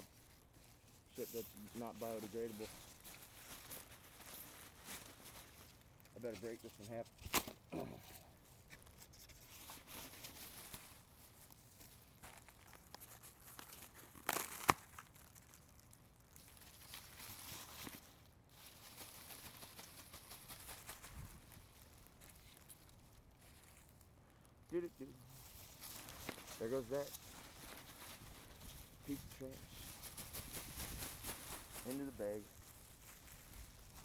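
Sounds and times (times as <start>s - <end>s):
packing material crackling: 0.0s - 34.0s
loud crack and snap: 7.1s - 7.8s, 12.3s - 18.0s.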